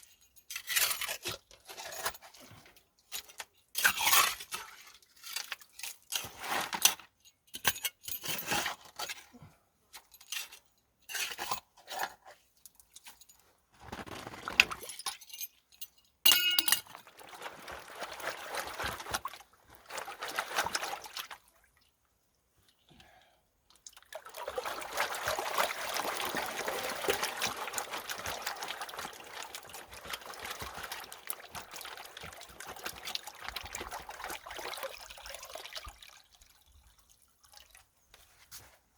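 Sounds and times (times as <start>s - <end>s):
gravel clattering into a pan: 13.8s - 15.4s, 26.0s - 34.0s.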